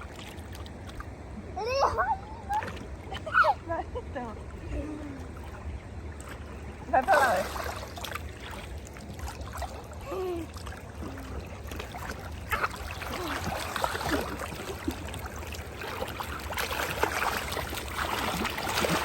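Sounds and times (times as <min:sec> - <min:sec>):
stream water running over rocks: 0:06.4 - 0:10.0, 0:10.9 - 0:19.0.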